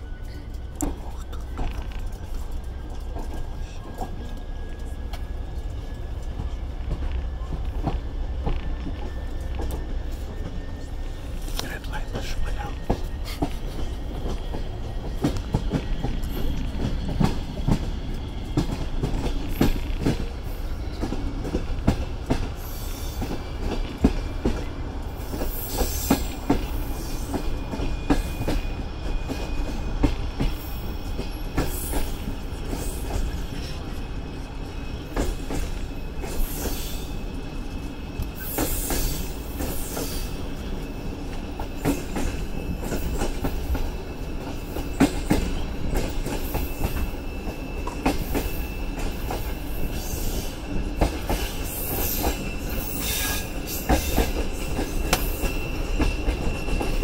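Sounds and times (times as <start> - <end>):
train rumbling along track: 0.0 - 57.0
high wheel squeals: 30.8 - 57.0.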